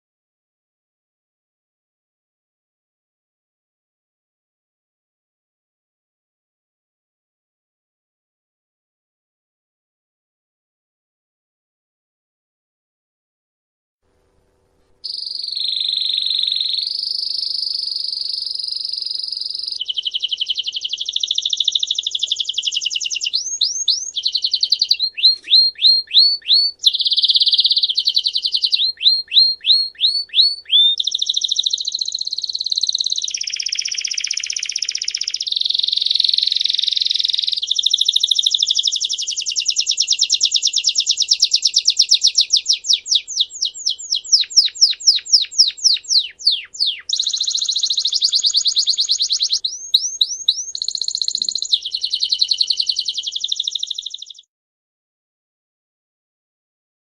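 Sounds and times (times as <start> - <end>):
songbird trilling: 15.0 - 54.5.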